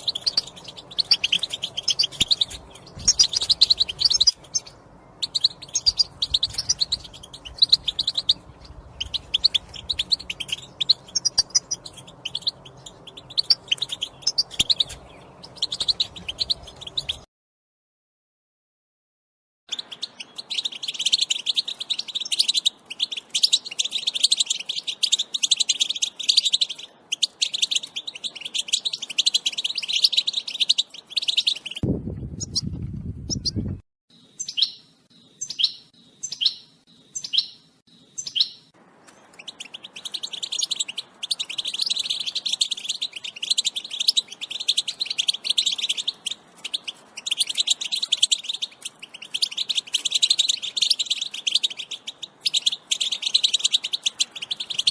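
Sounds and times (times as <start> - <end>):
goldfinch twittering: 0.0 - 17.2, 39.3 - 54.9.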